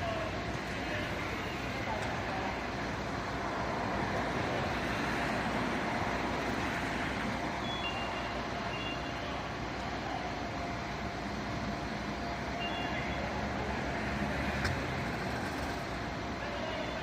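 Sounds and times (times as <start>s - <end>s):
large vehicle engine running: 0.0s - 17.0s
faint high beeps: 7.6s - 9.6s, 12.5s - 13.4s.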